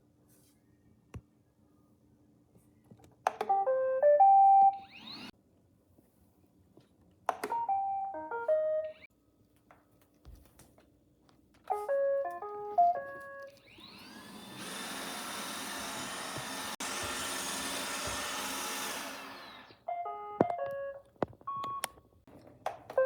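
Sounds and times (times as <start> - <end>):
robot vacuum electronic jingles: 4.7 - 5.3.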